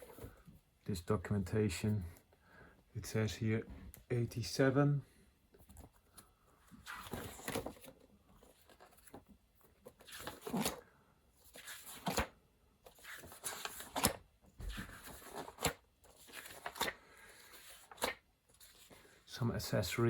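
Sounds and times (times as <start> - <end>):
paper pages turning: 5.6 - 10.8, 11.4 - 19.1.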